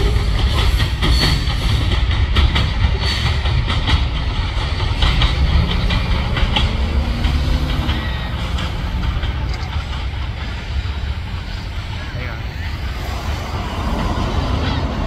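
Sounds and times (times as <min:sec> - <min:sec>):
freight train rumbling: 0:00.0 - 0:15.0
wheels clacking on rails: 0:00.0 - 0:15.0.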